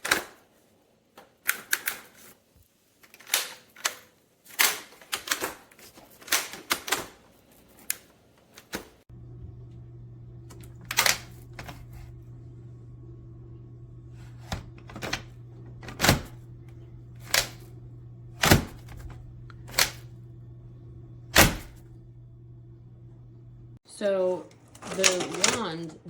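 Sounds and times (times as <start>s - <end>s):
low steady hum: 9.1s - 24.8s.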